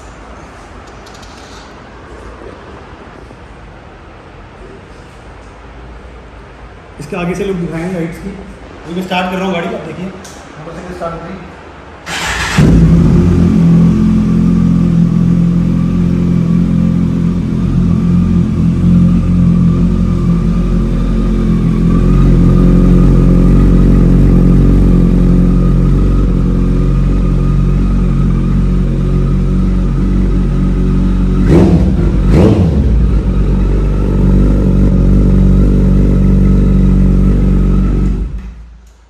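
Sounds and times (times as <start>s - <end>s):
motorcycle engine idling loudly: 12.1s - 38.6s
engine throttle blips: 12.1s - 38.9s.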